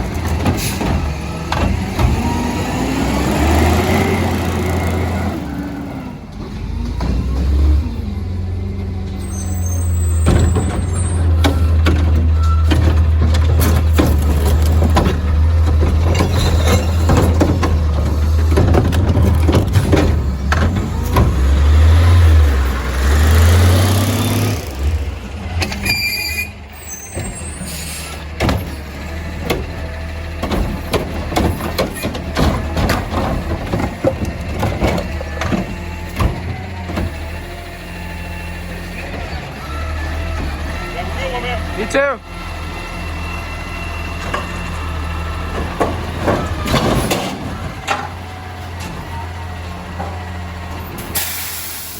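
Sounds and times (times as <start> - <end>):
clanks and knocks: 0.0 - 2.4, 10.1 - 21.9, 28.2 - 37.3, 44.2 - 49.2
garbage truck engine revving: 0.0 - 51.9.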